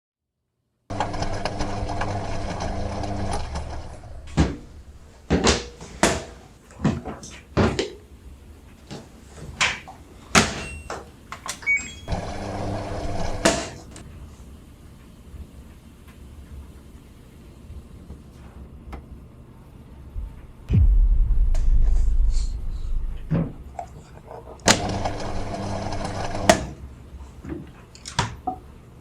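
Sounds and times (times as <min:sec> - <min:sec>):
machine hum: 0:20.2 - 0:23.7.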